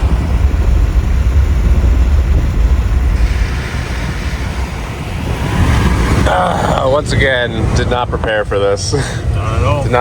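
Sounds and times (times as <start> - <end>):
car road and engine rumble: 0.0 - 10.0.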